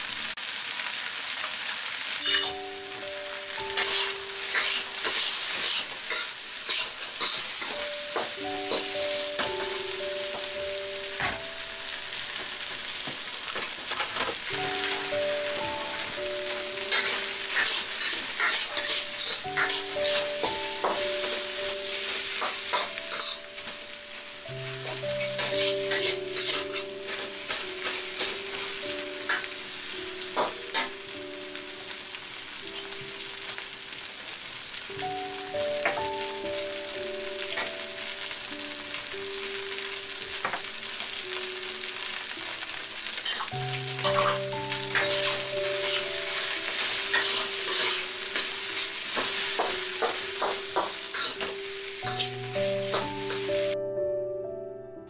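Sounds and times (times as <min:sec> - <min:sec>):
fried rice sizzling in a pan: 0:00.0 - 0:53.8
soft background music: 0:02.2 - 0:12.7, 0:14.4 - 0:34.0, 0:34.7 - 0:55.0
metal spatula scraping a pan: 0:03.8 - 0:08.9, 0:16.9 - 0:21.4, 0:22.4 - 0:23.5, 0:24.8 - 0:28.6, 0:45.0 - 0:51.5.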